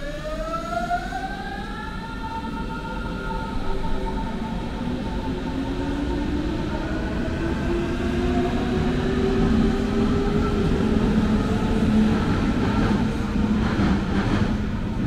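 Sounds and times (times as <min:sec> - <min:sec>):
train running rumble: 0:06.9 - 0:15.0.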